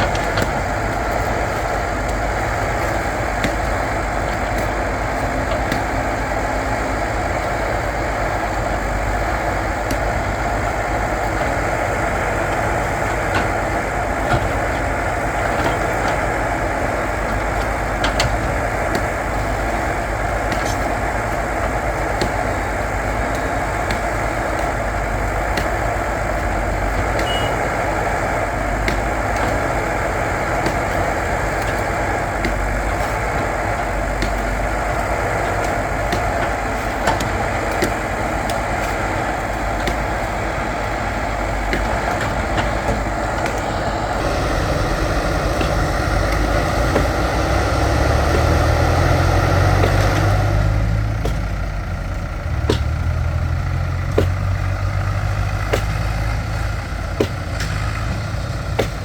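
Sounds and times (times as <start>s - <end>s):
diesel engine running: 0.0s - 59.0s
small metal clanks: 20.5s - 22.5s, 26.4s - 27.9s, 52.5s - 59.0s.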